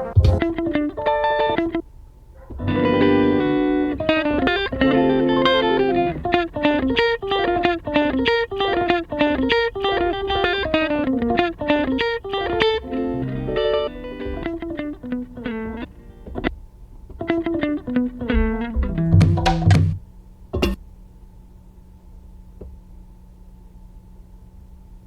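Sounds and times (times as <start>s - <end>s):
plucked electric guitar: 0.0s - 1.8s, 2.5s - 20.0s.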